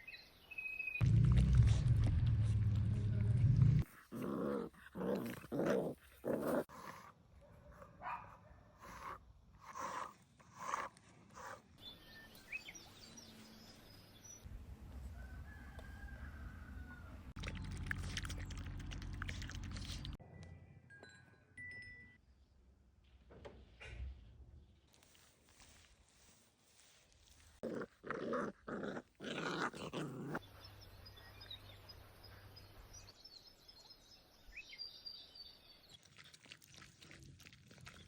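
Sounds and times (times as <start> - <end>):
loud low rumbling noise: 1.0 - 3.8
puppies growling and yapping: 3.8 - 6.7, 27.6 - 30.4.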